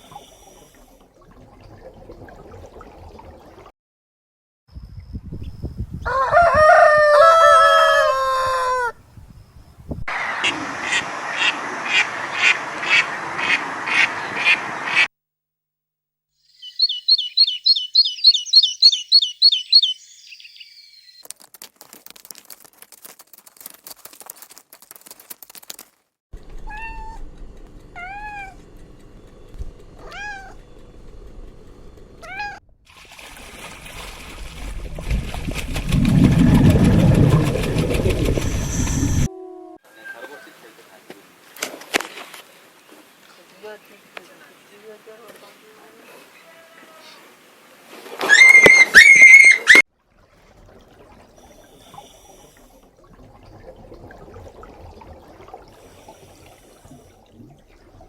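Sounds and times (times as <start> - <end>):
rooster crowing: 6.0 - 9.0
high chirps: 16.5 - 21.2
rapid animal calls: 16.6 - 21.2
rising-and-falling calls: 16.6 - 21.2, 48.2 - 49.8.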